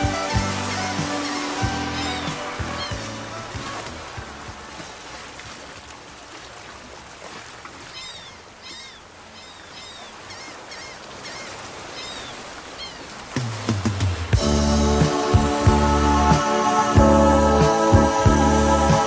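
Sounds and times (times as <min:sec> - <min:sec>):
music: 0:00.0 - 0:05.0, 0:13.4 - 0:19.0
steady outdoor hiss: 0:00.0 - 0:19.0.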